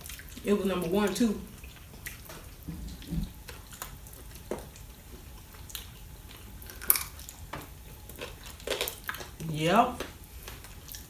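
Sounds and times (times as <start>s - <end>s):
chewing and mouth sounds: 0.0s - 11.0s
low hum: 2.5s - 4.3s.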